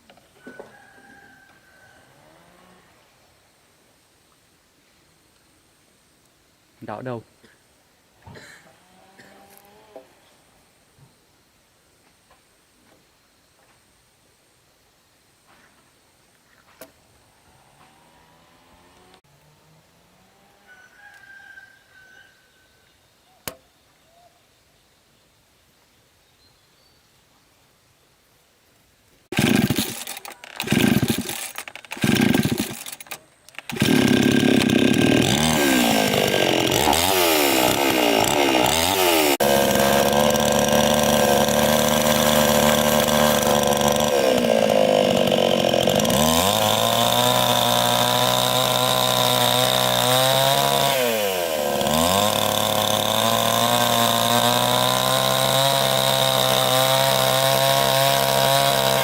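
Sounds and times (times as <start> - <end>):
chainsaw engine revving: 8.4 - 10.0, 17.5 - 20.5, 29.3 - 59.0.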